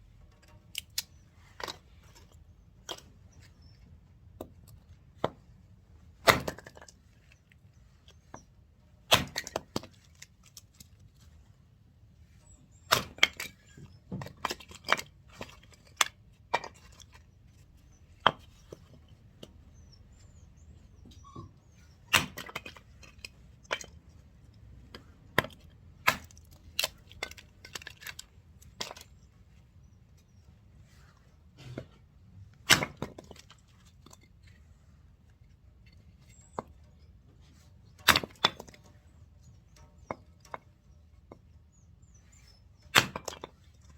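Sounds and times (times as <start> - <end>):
axe chopping and wood cracking: 6.2 - 7.1, 9.0 - 10.9, 12.7 - 17.3, 22.1 - 24.0, 24.9 - 29.1, 32.6 - 34.2, 38.0 - 38.9, 42.8 - 43.9.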